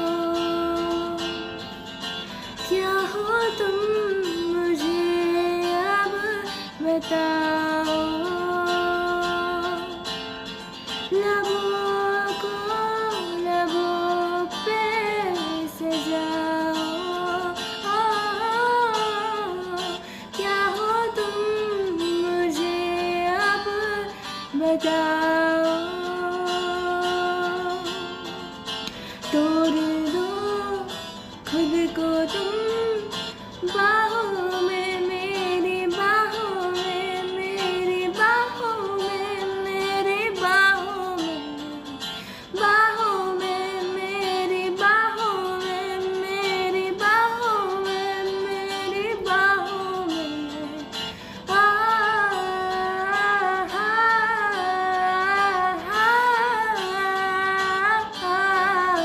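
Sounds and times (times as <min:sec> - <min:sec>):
acoustic guitar: 0:00.0 - 0:59.0
woman singing wordless melody: 0:00.0 - 0:59.0.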